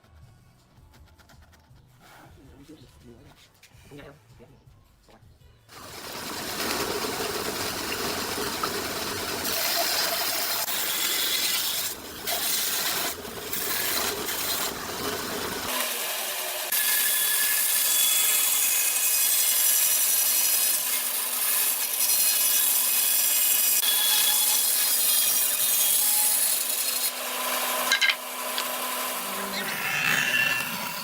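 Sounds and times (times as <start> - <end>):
tool rasping wood: 5.8 - 16.1.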